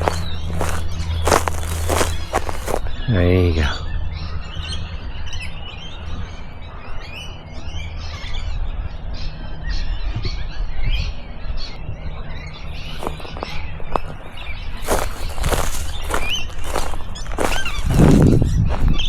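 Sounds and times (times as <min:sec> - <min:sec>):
steady low rumble: 0:00.0 - 0:03.1
wild birds chirping: 0:00.0 - 0:19.0.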